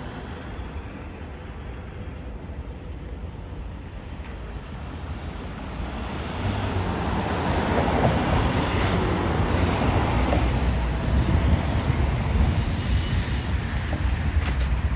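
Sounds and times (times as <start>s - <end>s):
rushing wind: 0.0s - 14.9s
wind buffeting microphone: 7.2s - 14.9s.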